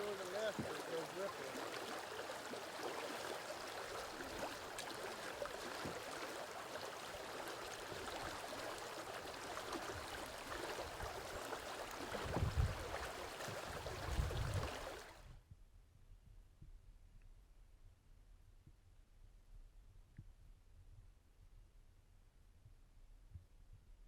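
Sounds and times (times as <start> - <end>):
river water rushing: 0.0 - 15.1.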